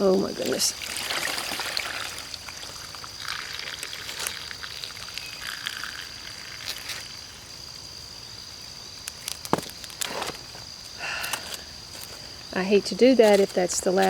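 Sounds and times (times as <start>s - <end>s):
water pouring and trickling: 0.0s - 7.4s.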